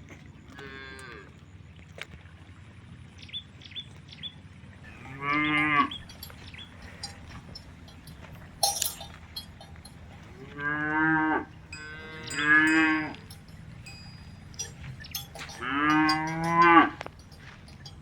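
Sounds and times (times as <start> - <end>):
cows mooing: 0.5 - 1.3, 4.9 - 18.0
sharp metal clank: 5.6 - 10.2, 11.8 - 18.0.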